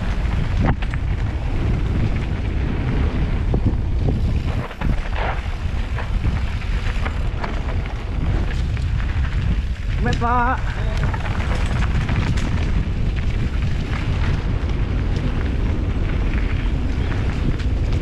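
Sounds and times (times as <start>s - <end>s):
mountain bike rumbling on dirt trail: 0.0s - 18.0s
wind buffeting microphone: 0.0s - 18.0s
bike clicks and knocks: 4.1s - 18.0s.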